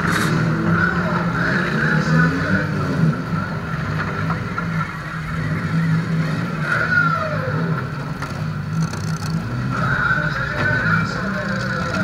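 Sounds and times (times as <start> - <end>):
car engine idling: 6.6 - 12.0.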